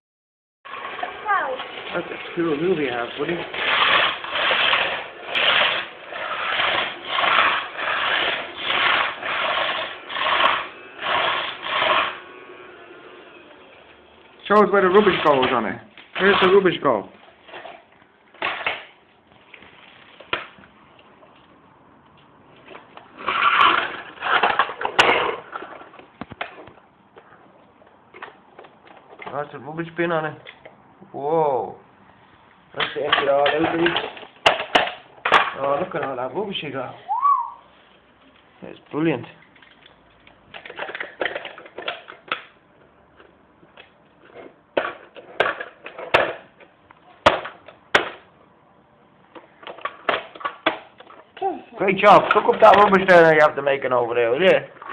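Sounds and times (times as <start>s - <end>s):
toy vacuum cleaner rattling: 0.7s - 12.3s, 14.6s - 16.8s, 23.2s - 25.9s, 32.8s - 36.2s, 40.5s - 42.4s.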